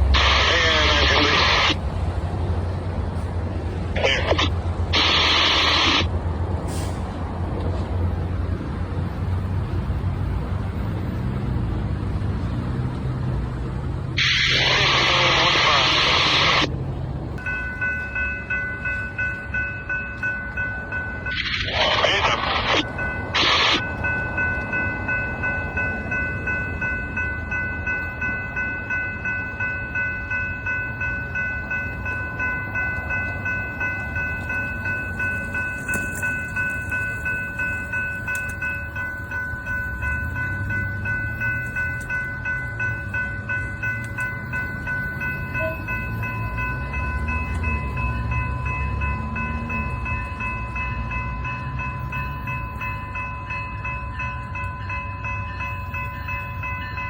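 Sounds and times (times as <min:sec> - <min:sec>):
low diesel engine hum: 0:00.0 - 0:57.0
high-pitched squeal: 0:04.0 - 0:06.1, 0:14.2 - 0:16.7, 0:21.3 - 0:24.0.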